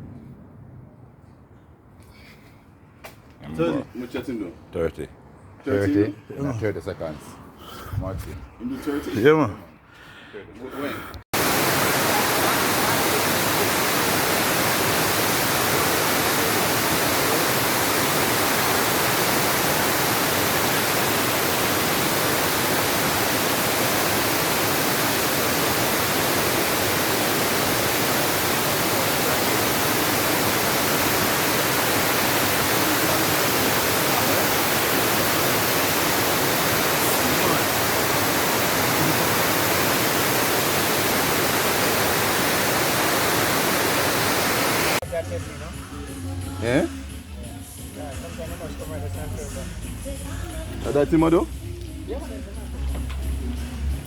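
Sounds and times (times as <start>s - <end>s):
water rushing: 11.3s - 45.0s.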